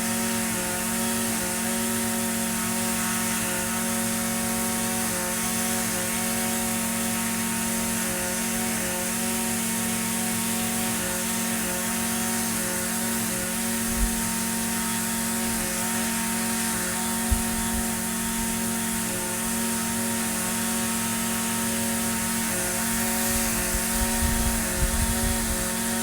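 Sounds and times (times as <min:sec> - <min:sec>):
string trimmer engine running: 0:00.0 - 0:26.0.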